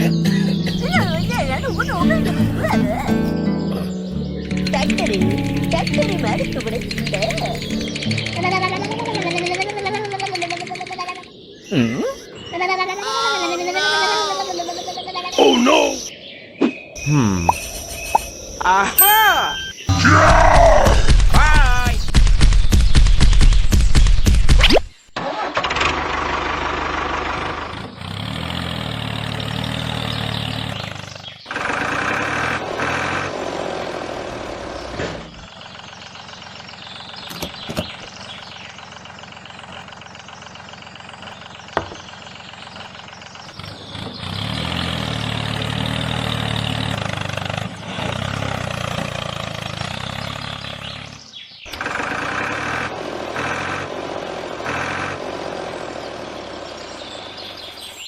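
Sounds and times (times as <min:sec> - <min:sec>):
engine running: 0:00.0 - 0:12.0, 0:25.2 - 0:58.0.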